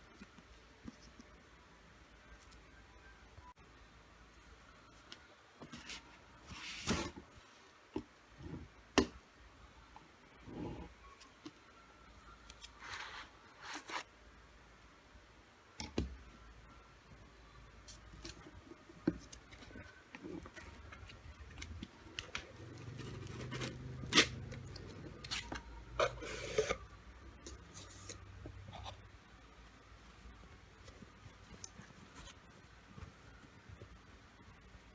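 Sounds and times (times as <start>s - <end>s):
packaging being opened: 21.6s - 25.7s.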